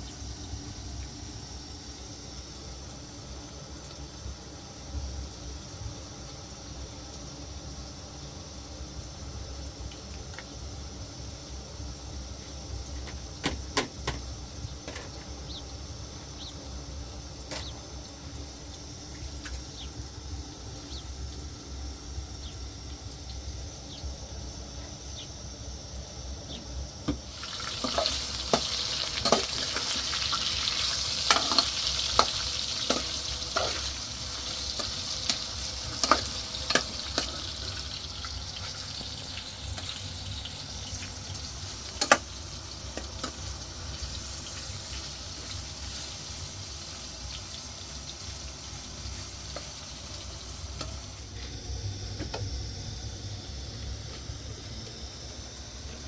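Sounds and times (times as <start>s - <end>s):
food sizzling in a pan: 27.2s - 52.2s.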